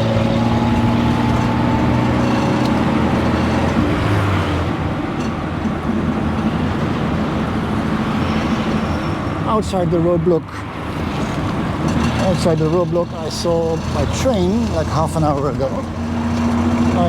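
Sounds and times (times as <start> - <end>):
small engine humming: 0.0 - 4.5, 11.8 - 17.0
road noise: 0.0 - 17.0.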